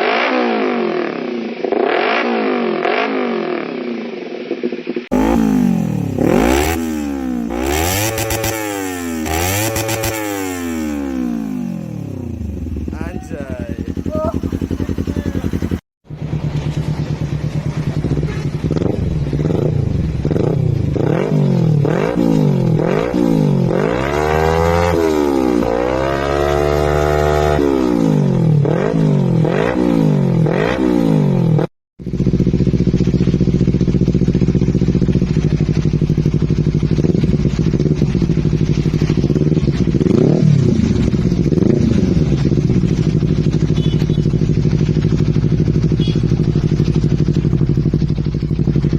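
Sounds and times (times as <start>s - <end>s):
motorcycle engine revving: 0.0s - 48.9s
motorcycle engine idling: 9.2s - 21.1s, 32.0s - 48.9s.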